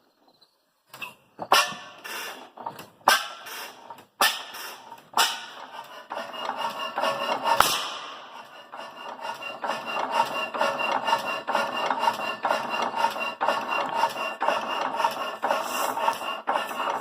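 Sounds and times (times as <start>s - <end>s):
stationary engine running: 4.8s - 17.0s.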